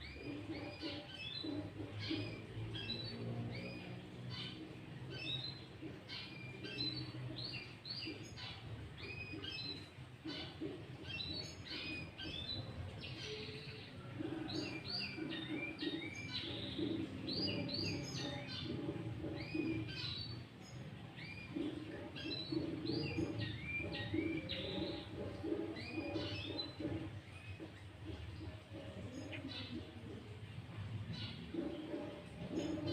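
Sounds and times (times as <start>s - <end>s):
bulbul singing: 0.0s - 32.9s.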